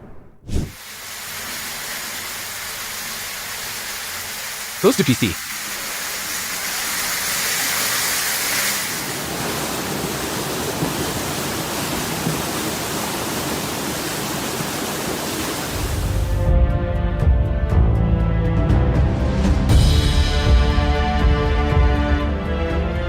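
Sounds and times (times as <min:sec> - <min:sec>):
water rushing: 0:00.6 - 0:16.4.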